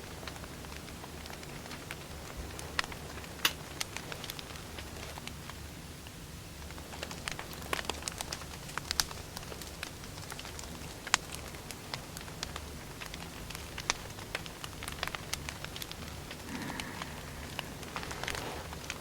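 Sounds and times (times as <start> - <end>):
wood fire crackling: 0.0 - 19.0
low rumble: 16.4 - 18.8.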